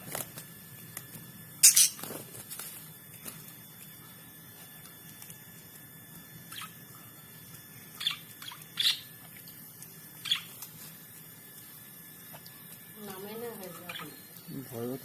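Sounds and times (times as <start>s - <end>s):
budgerigars chirping: 6.5s - 6.7s, 8.0s - 9.1s, 10.2s - 10.5s.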